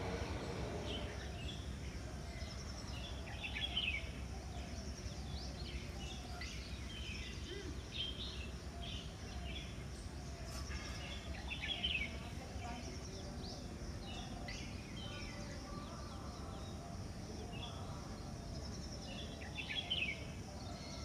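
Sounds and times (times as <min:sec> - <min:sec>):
low background rumble: 0:00.0 - 0:03.0.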